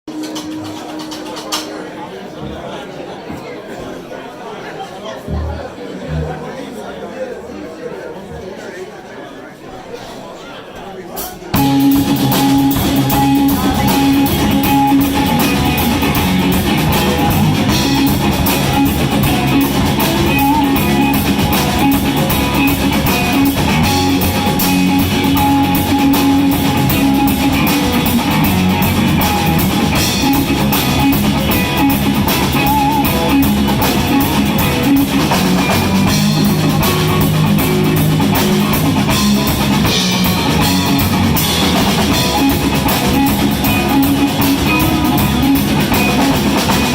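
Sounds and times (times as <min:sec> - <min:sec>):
drum kit beat: 0:05.3 - 0:06.4, 0:11.3 - 0:46.9
electric guitar: 0:11.6 - 0:46.9.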